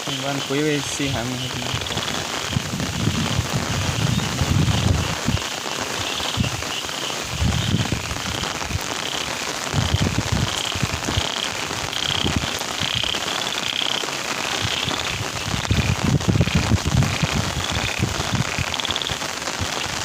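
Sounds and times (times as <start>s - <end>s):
steady rain falling: 0.0s - 20.0s
low rumbles: 1.0s - 5.4s.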